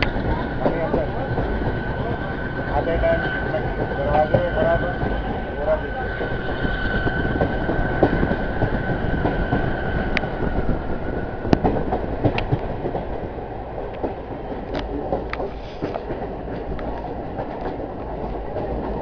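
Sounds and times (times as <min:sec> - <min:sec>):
train wheels rumbling on rails: 0:00.0 - 0:19.0
sharp clicks of wheels: 0:11.5 - 0:13.2.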